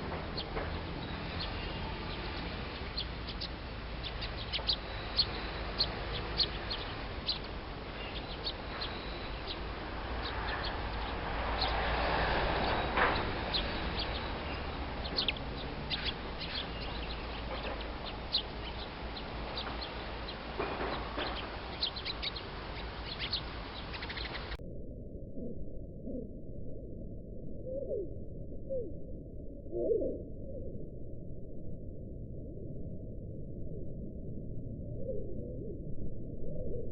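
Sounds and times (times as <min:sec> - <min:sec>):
broad rushing noise: 0:00.0 - 0:24.6
small birds chirping: 0:00.0 - 0:24.6
steady low hum: 0:00.0 - 0:36.9.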